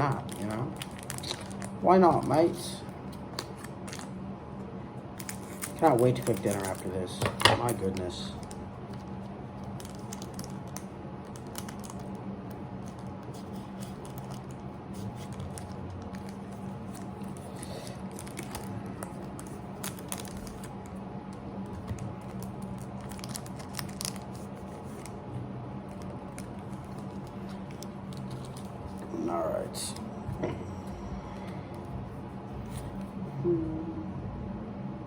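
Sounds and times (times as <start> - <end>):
foil wrapper crinkling: 0.0 - 4.1, 5.2 - 21.0, 21.7 - 25.2, 25.8 - 30.0
wrapper tearing: 0.1 - 2.4, 5.2 - 9.0, 9.6 - 12.2, 12.8 - 21.0, 21.8 - 25.2, 25.8 - 29.1
low hum: 8.3 - 35.0.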